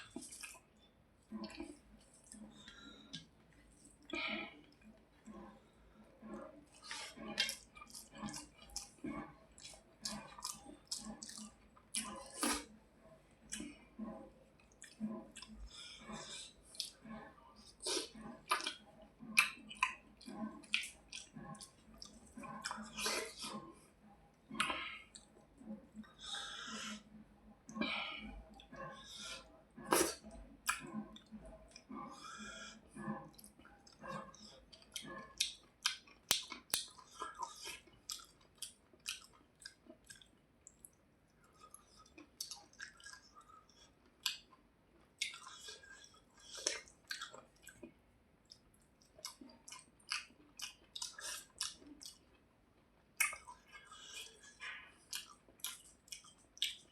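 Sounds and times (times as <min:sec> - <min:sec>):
person chewing food: 0:00.0 - 0:56.9
wet mouth clicks: 0:06.7 - 0:12.7, 0:13.4 - 0:23.6, 0:27.7 - 0:32.2, 0:33.0 - 0:41.0, 0:45.2 - 0:52.4, 0:53.2 - 0:56.9.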